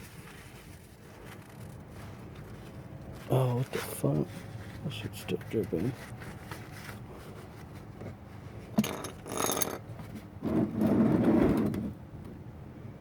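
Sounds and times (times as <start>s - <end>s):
rustling: 0.0s - 10.3s.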